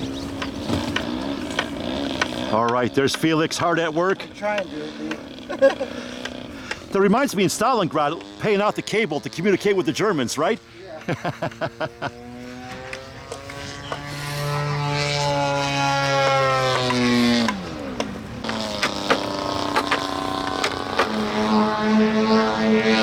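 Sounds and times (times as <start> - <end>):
model airplane engine flying past: 0.0 - 23.0
second steady engine note: 0.0 - 23.0.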